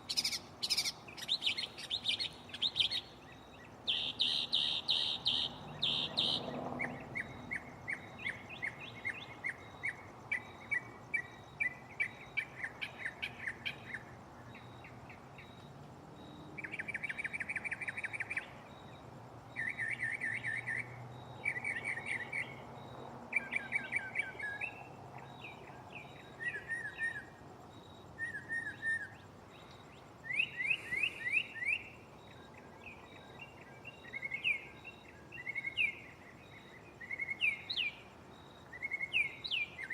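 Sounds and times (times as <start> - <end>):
mockingbird singing: 0.0 - 15.6, 16.6 - 18.6, 19.5 - 22.6, 23.3 - 27.3, 28.2 - 38.0, 38.7 - 39.9.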